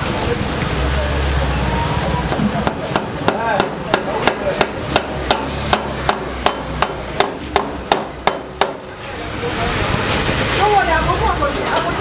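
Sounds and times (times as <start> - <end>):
sharp knocks: 2.3 - 8.8.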